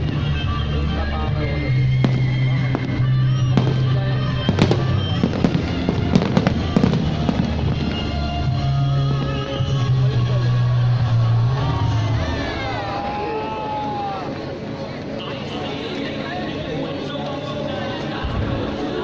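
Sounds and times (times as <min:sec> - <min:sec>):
fireworks banging and crackling: 0:00.0 - 0:00.8, 0:01.7 - 0:11.2, 0:18.2 - 0:19.0
music soundtrack: 0:00.0 - 0:19.0
faint firework whistling: 0:01.6 - 0:08.3.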